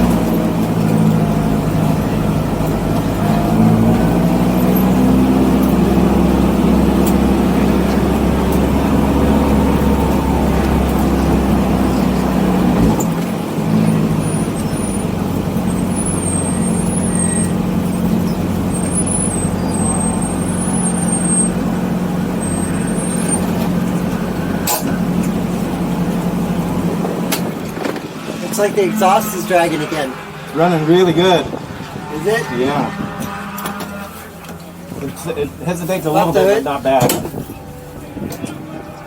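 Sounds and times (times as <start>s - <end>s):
car engine low drone: 0.0s - 39.0s
short high squeals: 15.7s - 21.6s, 22.4s - 23.6s.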